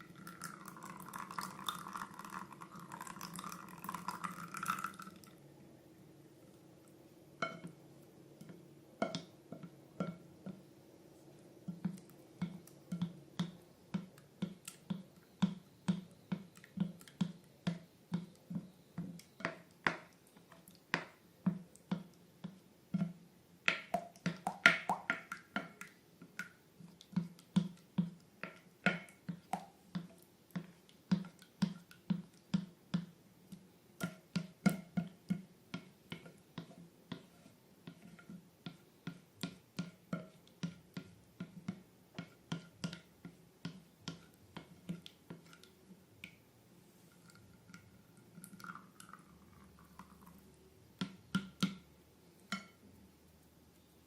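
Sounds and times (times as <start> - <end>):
slime squishing with wet pops: 8.4 - 46.5.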